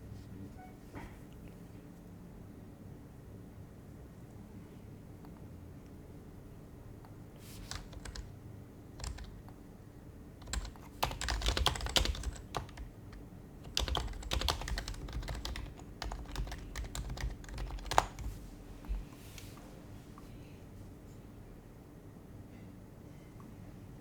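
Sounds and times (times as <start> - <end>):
soft muted keyboard typing: 7.4 - 9.6, 10.4 - 19.1.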